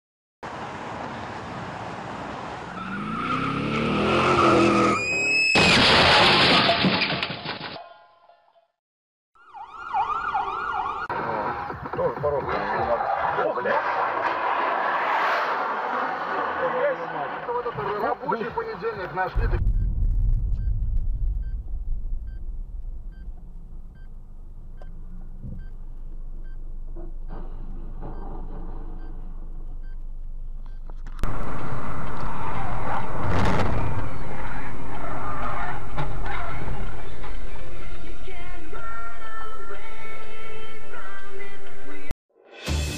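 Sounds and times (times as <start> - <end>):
tyre squeal: 2.7 - 5.7
car engine revving: 2.9 - 5.0
car rumbling on road: 18.5 - 38.3
sudden loud noise: 19.3 - 24.8, 31.2 - 36.8.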